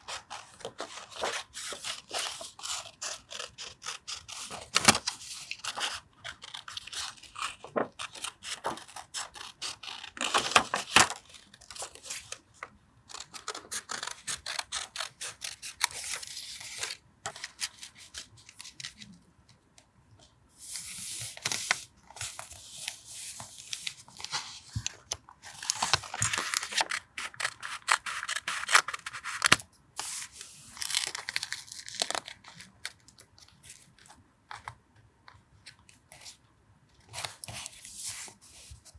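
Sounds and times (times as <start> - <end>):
paper tearing and rustling: 0.0 - 12.4, 25.5 - 33.0
scissors snipping paper: 0.1 - 12.3, 13.1 - 19.0, 25.6 - 29.6.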